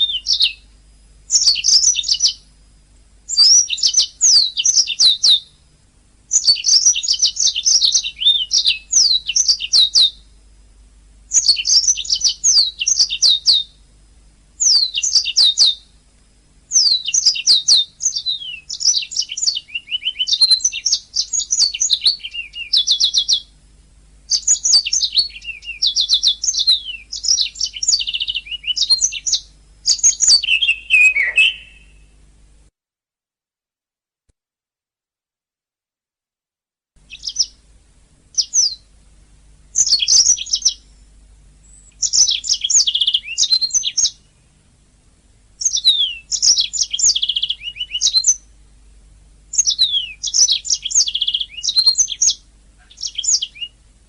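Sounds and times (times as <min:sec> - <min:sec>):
canary singing: 0:00.0 - 0:00.7, 0:01.3 - 0:02.5, 0:03.3 - 0:05.6, 0:06.3 - 0:10.3, 0:11.3 - 0:13.8, 0:14.6 - 0:15.9, 0:16.7 - 0:23.6, 0:24.3 - 0:32.2, 0:37.0 - 0:37.6, 0:38.3 - 0:38.9, 0:39.7 - 0:41.0, 0:41.6 - 0:44.4, 0:45.6 - 0:48.5, 0:49.5 - 0:53.8.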